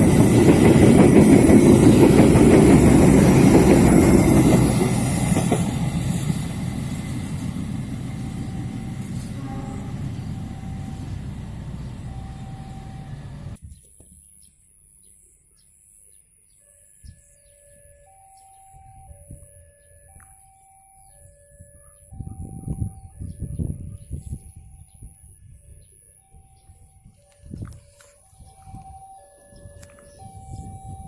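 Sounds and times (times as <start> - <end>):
train rumbling on track: 0.0 - 13.6.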